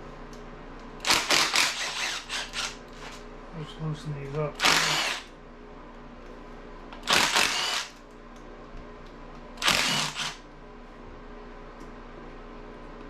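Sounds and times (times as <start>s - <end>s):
cordless power driver spinning: 1.0s - 3.2s, 4.6s - 5.2s, 7.0s - 7.9s, 9.6s - 10.4s.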